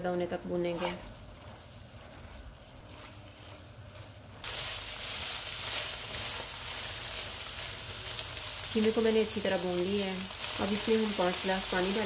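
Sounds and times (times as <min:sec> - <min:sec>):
spatula scraping a pan: 0:00.6 - 0:04.5
meat sizzling in oil: 0:01.2 - 0:12.0.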